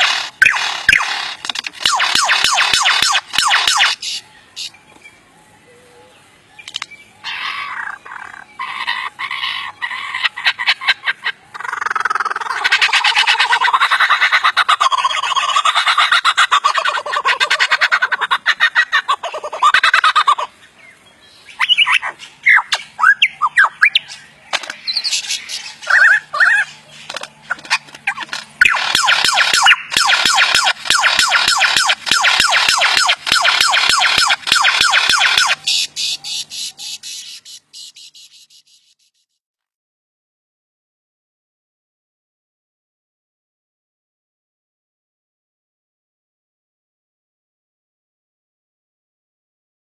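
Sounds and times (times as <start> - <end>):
bird squawking: 0.0 - 4.8, 5.7 - 39.1
bird chirping: 0.0 - 39.4.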